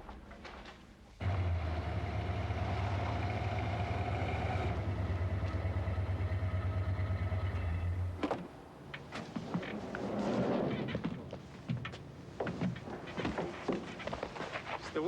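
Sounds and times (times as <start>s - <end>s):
car engine idling: 1.2s - 9.1s.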